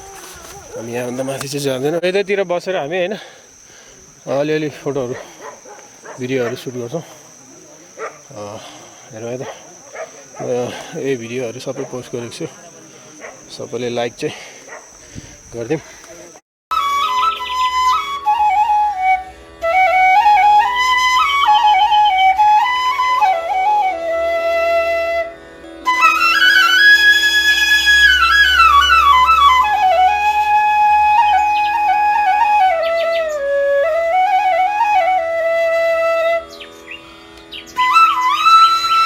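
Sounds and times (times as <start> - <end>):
solo flute melody: 16.7 - 39.0.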